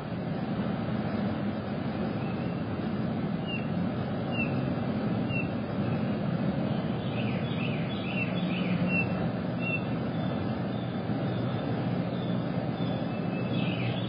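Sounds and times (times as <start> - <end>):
steady low rumble: 0.0 - 14.0
small birds chirping: 3.3 - 14.0.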